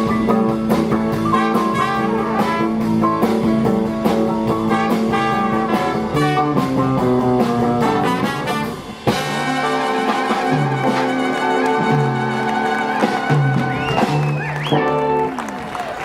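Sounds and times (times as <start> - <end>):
jazz band with guitar and horns: 0.0 - 16.0.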